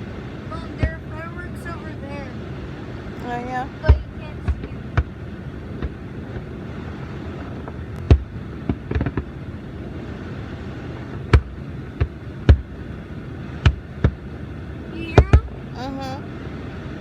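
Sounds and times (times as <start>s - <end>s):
steady low background noise: 0.0s - 17.0s
distant fireworks bangs: 3.0s - 14.3s.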